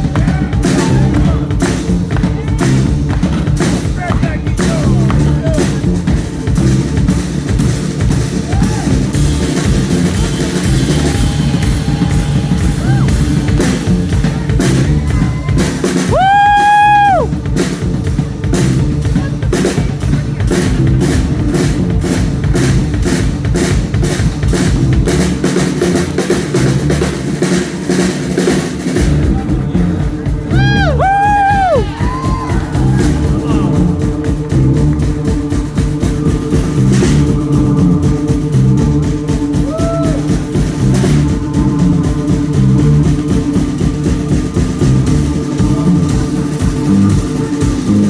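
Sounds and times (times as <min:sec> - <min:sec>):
rock band playing: 0:00.0 - 0:48.0.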